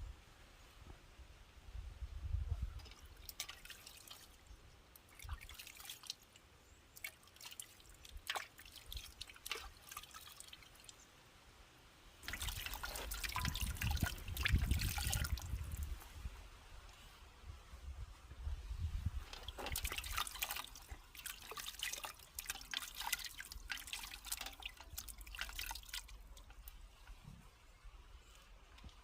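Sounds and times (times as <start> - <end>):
water dripping and splashing: 2.7 - 11.1, 12.2 - 16.2, 19.2 - 27.2.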